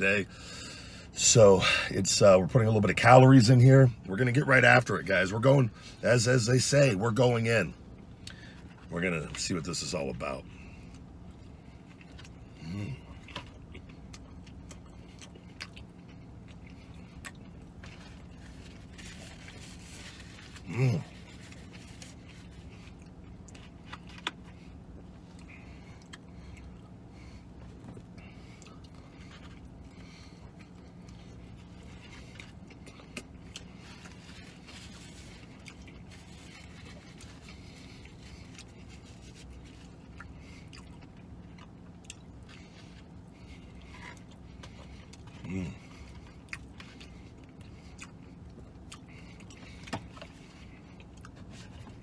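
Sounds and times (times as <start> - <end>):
low vehicle cabin hum: 0.0 - 52.0
man chewing: 10.5 - 52.0.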